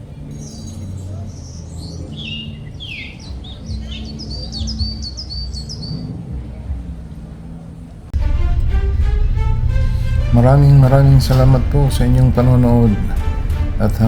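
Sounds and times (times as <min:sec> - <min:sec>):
birds chirping and calling: 0:00.0 - 0:06.2
steady low rumble: 0:02.5 - 0:14.0.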